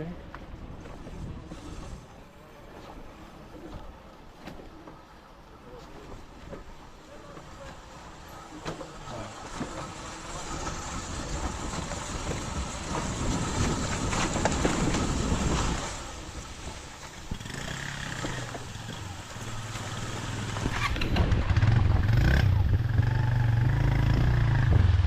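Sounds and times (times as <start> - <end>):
vehicle rumbling on dirt road: 0.0 - 25.0
engine hum: 7.2 - 25.0.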